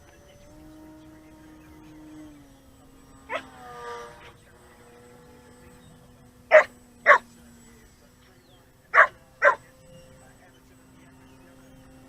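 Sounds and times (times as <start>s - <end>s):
distant electric motor hum: 0.0s - 12.0s
dog barking: 3.3s - 3.5s, 6.5s - 7.2s, 8.9s - 9.6s.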